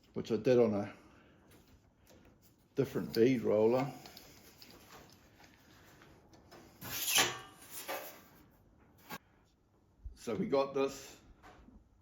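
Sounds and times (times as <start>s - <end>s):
steel panel scraping: 6.7s - 8.4s.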